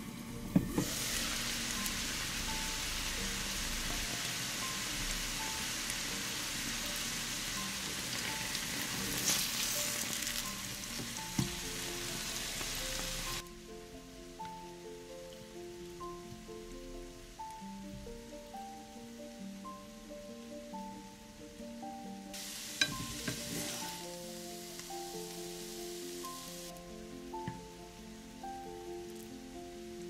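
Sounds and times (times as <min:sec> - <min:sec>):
food sizzling in a pan: 0:00.0 - 0:13.7, 0:21.8 - 0:30.0.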